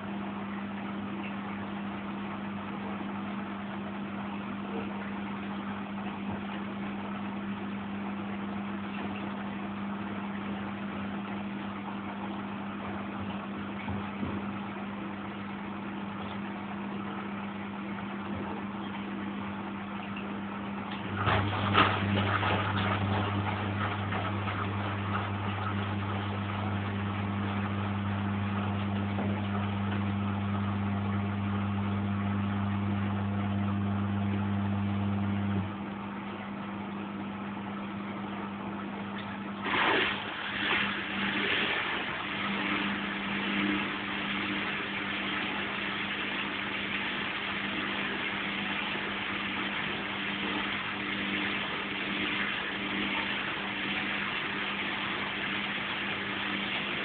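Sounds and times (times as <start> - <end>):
washing machine motor hum: 0.0 - 57.0
water rushing: 39.6 - 57.0.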